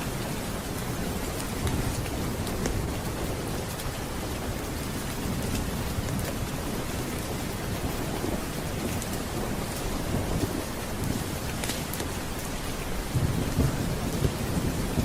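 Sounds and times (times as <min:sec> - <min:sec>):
steady rain: 0:00.0 - 0:15.0
thunder rumbling: 0:00.0 - 0:15.0.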